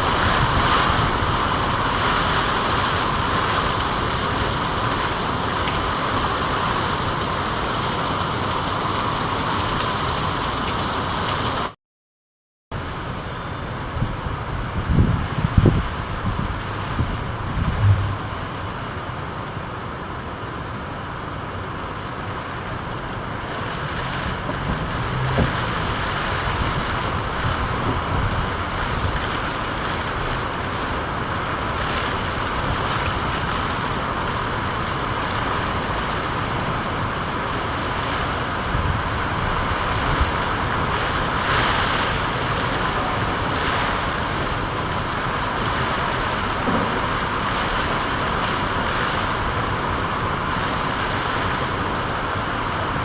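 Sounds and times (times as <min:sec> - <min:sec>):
rain hissing: 0:00.0 - 0:11.8, 0:12.9 - 0:19.4, 0:22.0 - 0:53.0
louder rain taps: 0:23.4 - 0:30.6, 0:42.5 - 0:52.2.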